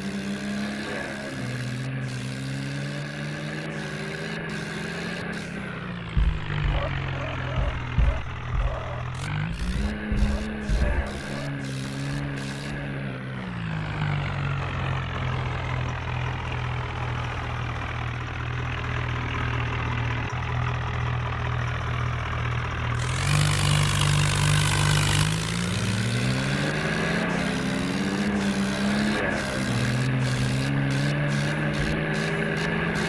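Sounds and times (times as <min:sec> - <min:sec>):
tractor engine running: 0:00.0 - 0:33.0
hissing noise: 0:03.8 - 0:12.8.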